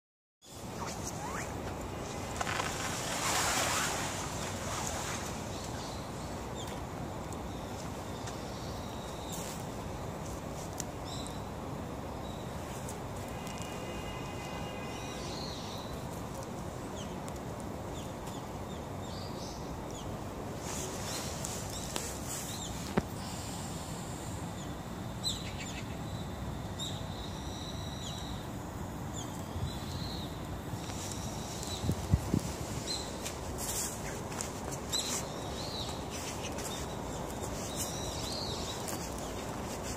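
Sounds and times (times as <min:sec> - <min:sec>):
faint bird chirps: 0:00.4 - 0:02.9
small birds chirping: 0:00.4 - 0:13.0, 0:15.1 - 0:39.9
outdoor background noise: 0:00.4 - 0:39.9
steady background noise: 0:00.4 - 0:39.9.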